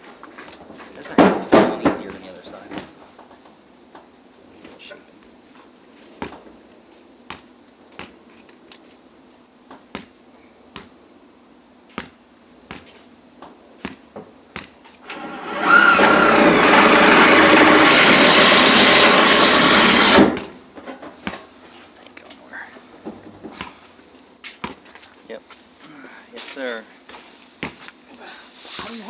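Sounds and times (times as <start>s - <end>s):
loud power tool running: 15.0s - 20.4s.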